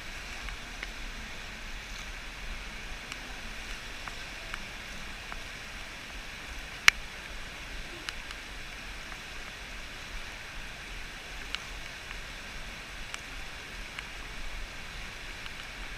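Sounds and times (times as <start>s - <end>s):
river water rushing: 0.0s - 15.9s
faint ticks: 11.4s - 12.2s, 15.3s - 15.8s.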